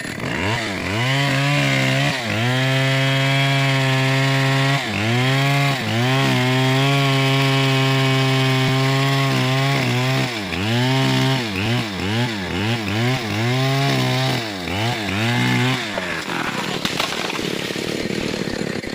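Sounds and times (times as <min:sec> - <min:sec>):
chainsaw running at high revs: 0:00.0 - 0:18.9.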